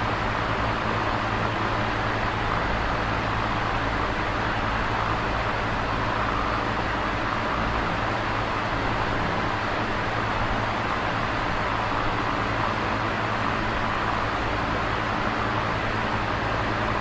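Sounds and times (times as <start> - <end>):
electric fan running: 0.0 - 17.0.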